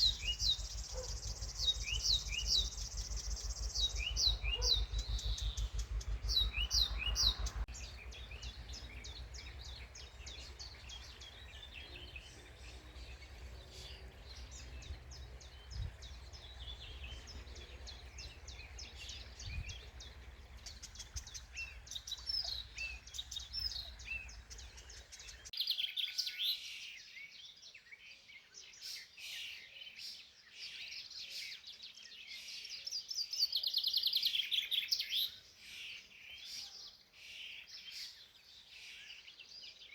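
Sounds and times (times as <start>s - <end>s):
fast bird trill: 0.0s - 25.5s
low rumble: 0.0s - 25.5s
songbirds singing and chirping: 0.0s - 39.9s.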